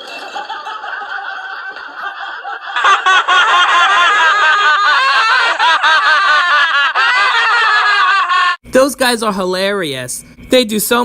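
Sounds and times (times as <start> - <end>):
men laughing: 0.0 - 8.6.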